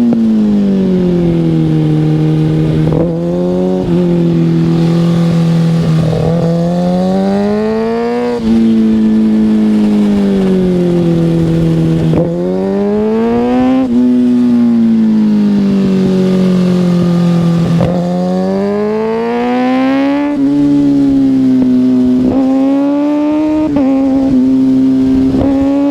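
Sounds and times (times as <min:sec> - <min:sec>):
motorcycle engine accelerating: 0:00.0 - 0:25.9.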